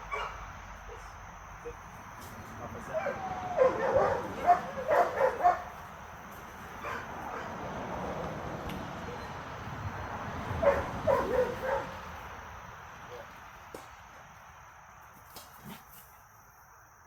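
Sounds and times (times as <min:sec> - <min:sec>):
dogs barking and yipping: 0:00.0 - 0:01.8, 0:02.8 - 0:05.9, 0:06.7 - 0:07.6, 0:10.5 - 0:12.2.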